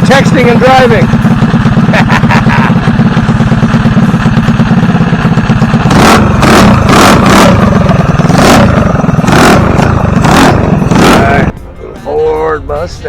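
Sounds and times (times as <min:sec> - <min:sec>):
car engine idling: 0:00.0 - 0:13.0
car engine revving in blips: 0:05.8 - 0:11.5.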